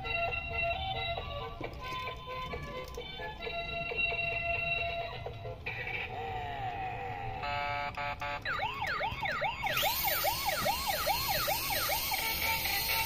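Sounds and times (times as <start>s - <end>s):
electronic toy siren wailing: 3.9s - 13.0s.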